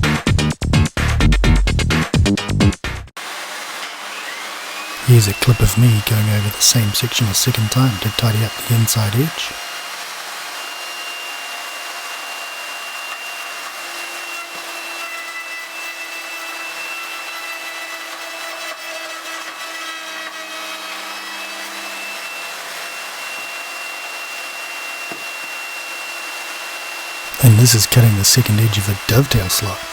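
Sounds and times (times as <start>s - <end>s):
router bit cutting wood: 3.2s - 29.9s
router motor whine: 3.2s - 29.9s.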